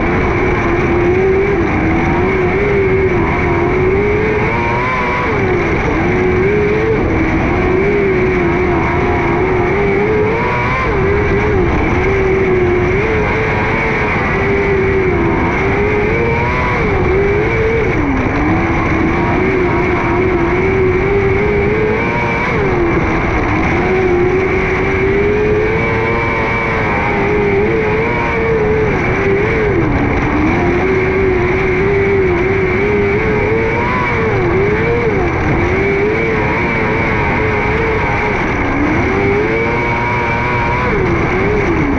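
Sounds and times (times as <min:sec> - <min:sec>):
racing motorcycle engine: 0:00.0 - 0:41.9.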